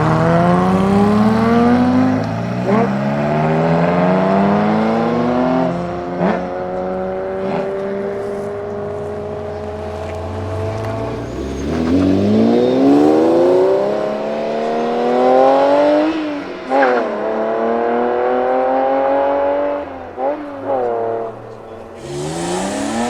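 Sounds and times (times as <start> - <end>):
car engine accelerating hard: 0.0 - 23.0
engine sharp cracks: 22.0 - 23.0.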